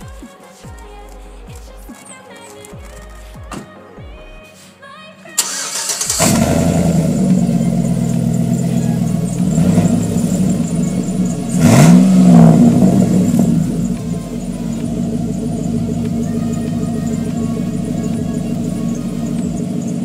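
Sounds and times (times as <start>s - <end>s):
engine rev: 5.4s - 20.0s
truck engine starting and running: 5.4s - 20.0s.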